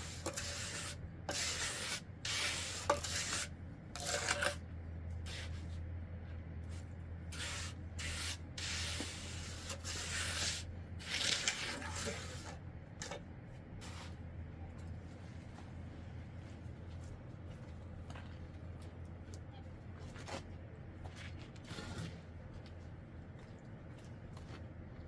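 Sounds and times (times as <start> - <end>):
scraping on a hard surface: 0.0 - 4.6, 5.2 - 5.8, 7.3 - 13.2, 21.2 - 22.3.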